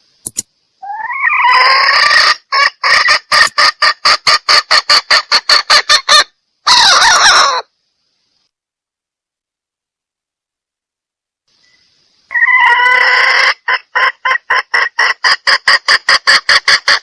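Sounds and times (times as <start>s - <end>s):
junglefowl harsh squawk: 0.8s - 7.7s, 12.3s - 17.0s
junglefowl short clucks: 2.0s - 7.6s.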